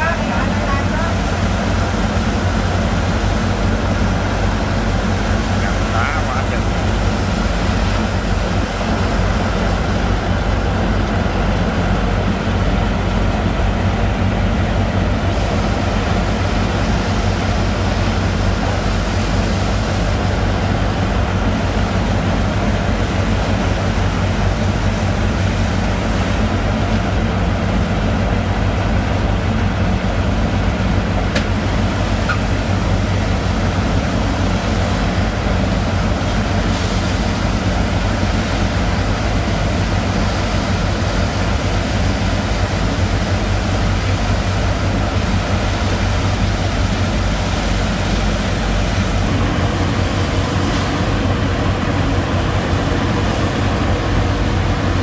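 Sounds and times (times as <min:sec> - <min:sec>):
pump engine droning: 0:00.0 - 0:55.0.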